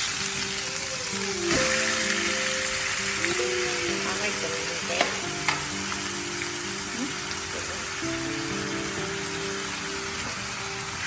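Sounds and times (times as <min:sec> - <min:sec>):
background music with held notes: 0:00.0 - 0:11.0
food sizzling in a pan: 0:00.0 - 0:11.0.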